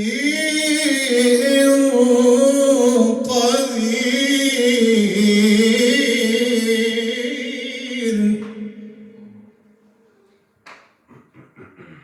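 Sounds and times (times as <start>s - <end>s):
man chanting recitation: 0.0s - 9.5s.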